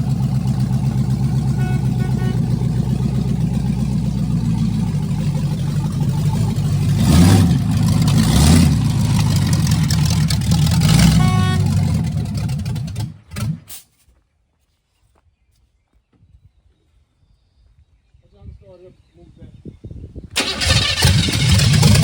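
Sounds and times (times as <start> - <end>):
car engine running and revving: 0.0 - 13.6.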